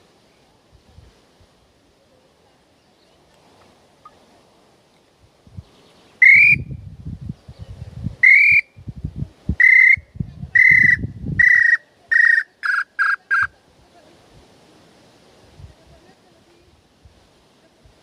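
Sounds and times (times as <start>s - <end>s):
bird-call whistle notes: 6.2s - 6.8s, 8.2s - 8.7s, 9.6s - 13.5s.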